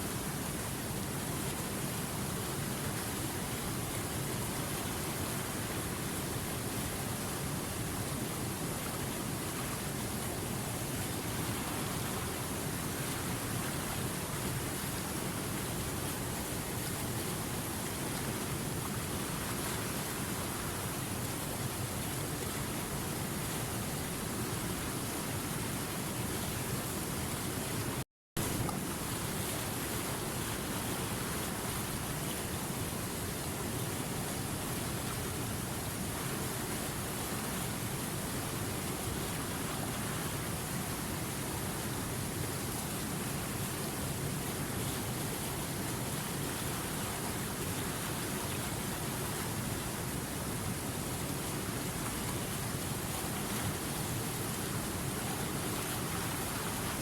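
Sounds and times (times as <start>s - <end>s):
water rushing over rocks: 0.0s - 57.0s.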